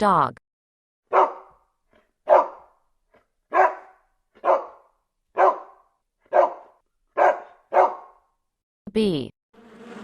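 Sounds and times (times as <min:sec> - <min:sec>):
dog barking: 0:01.1 - 0:02.8, 0:03.5 - 0:08.3.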